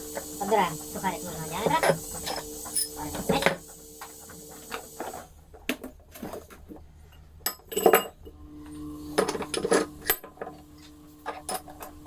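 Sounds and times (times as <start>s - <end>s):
steady low hum: 0.0s - 5.7s, 8.1s - 12.0s.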